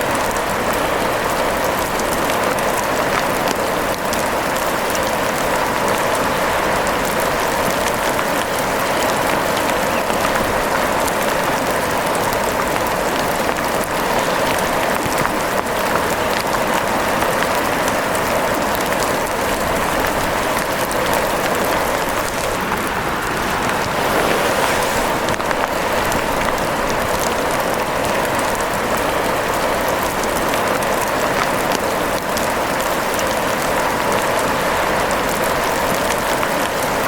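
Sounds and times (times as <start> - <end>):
heavy rain: 0.0 - 37.0.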